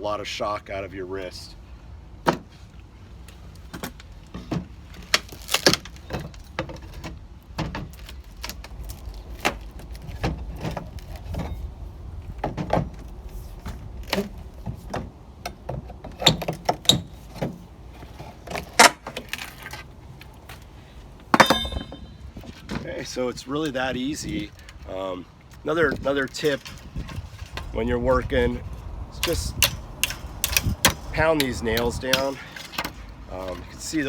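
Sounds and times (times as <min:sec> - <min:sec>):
hammer tapping a crowbar: 0:21.4 - 0:22.1
metallic clinks: 0:21.4 - 0:22.2.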